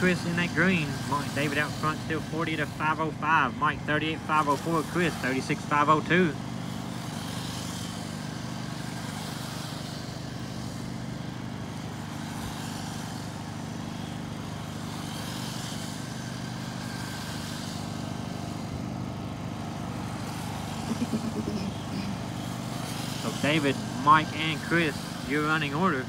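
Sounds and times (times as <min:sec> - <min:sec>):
rc cars passing: 0:00.0 - 0:26.0
steady low hum: 0:17.7 - 0:26.0.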